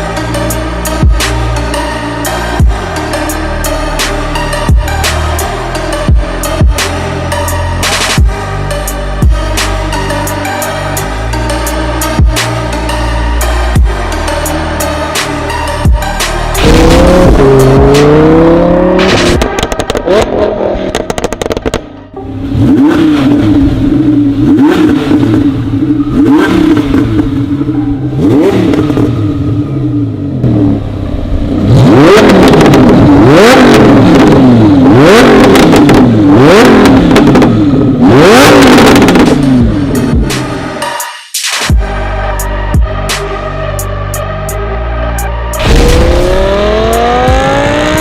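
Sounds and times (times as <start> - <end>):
car engine revving hard: 16.5 - 21.8, 22.4 - 40.7, 45.6 - 48.0.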